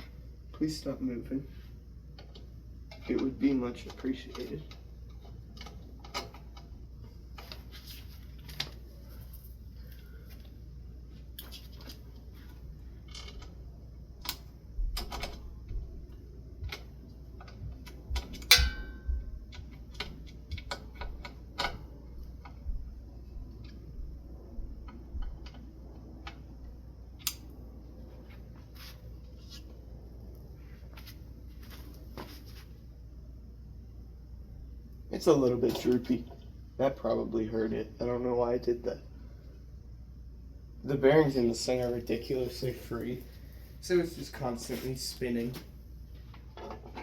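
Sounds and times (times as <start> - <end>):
metal clicks and knocks: 2.2 - 6.8, 14.2 - 22.7, 46.2 - 47.0
ringing metal clank: 18.5 - 19.1.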